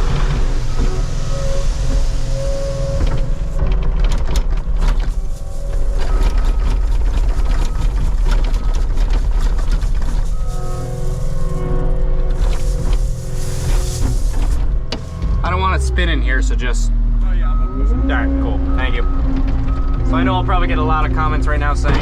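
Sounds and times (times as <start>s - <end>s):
diesel engine running: 0.0s - 22.0s
hydraulic whine: 0.0s - 22.0s
crushed stone pouring and rattling: 4.5s - 14.8s.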